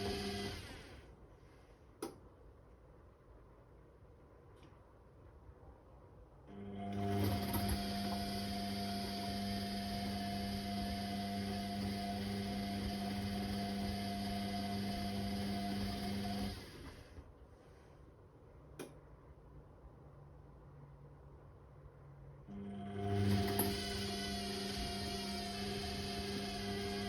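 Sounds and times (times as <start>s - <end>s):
washing machine drum humming: 0.0s - 0.9s, 6.5s - 16.7s, 22.5s - 27.0s.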